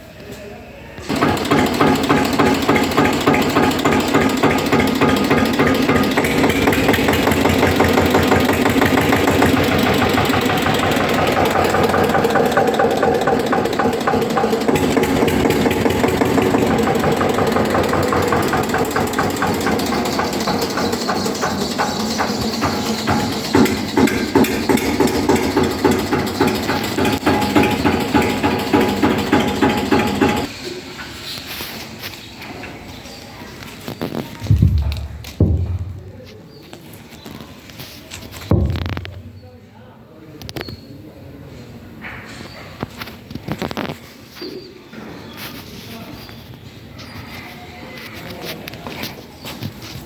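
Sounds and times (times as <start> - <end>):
tractor diesel engine running: 1.0 - 30.5, 34.0 - 36.3.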